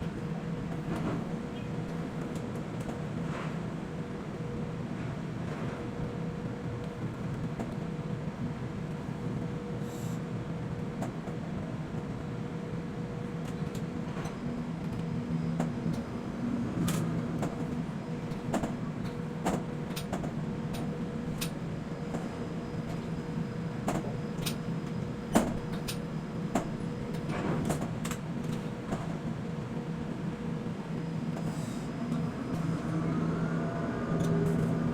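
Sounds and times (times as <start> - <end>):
machinery humming: 29.3 - 34.9.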